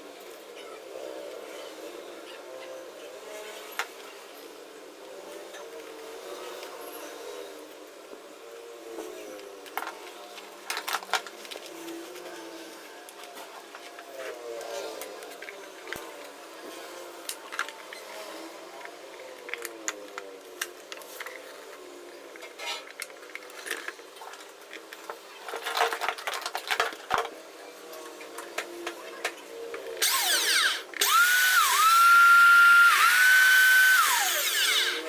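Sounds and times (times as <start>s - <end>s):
vacuum cleaner motor whining: 30.0s - 35.0s.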